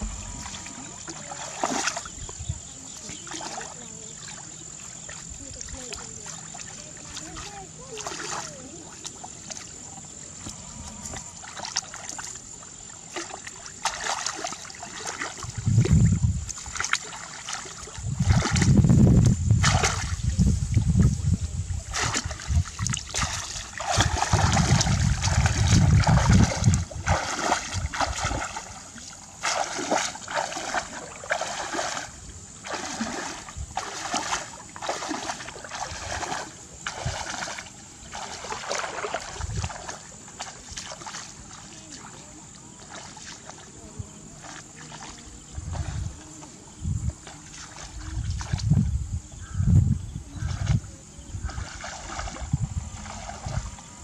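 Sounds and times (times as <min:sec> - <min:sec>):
deep rumble: 0:00.0 - 0:02.8, 0:15.5 - 0:16.5, 0:18.0 - 0:23.0, 0:23.8 - 0:28.4
faint high whine: 0:00.0 - 0:02.9
water splashing and sloshing: 0:00.0 - 0:49.5, 0:50.2 - 0:54.0.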